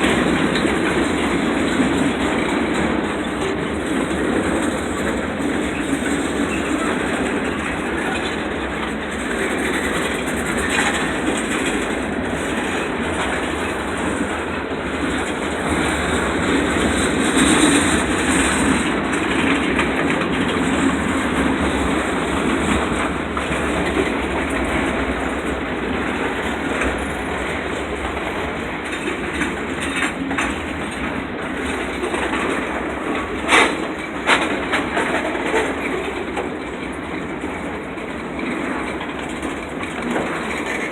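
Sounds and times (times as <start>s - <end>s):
freight train cars rolling: 0.0s - 40.9s
wheels clicking over rail joints: 0.0s - 40.9s.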